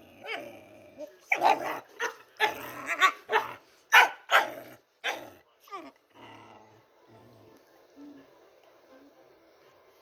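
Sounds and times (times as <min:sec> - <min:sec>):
dog barking and growling: 0:00.0 - 0:06.8.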